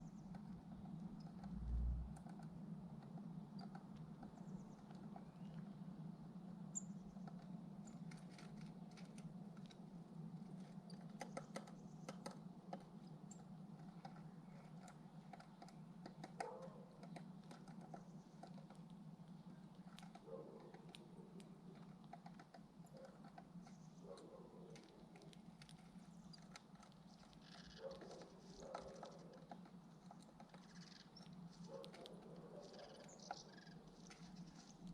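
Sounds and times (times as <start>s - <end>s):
steady low hum: 0.0s - 10.9s
light ticks and taps: 2.2s - 5.6s, 10.5s - 34.9s.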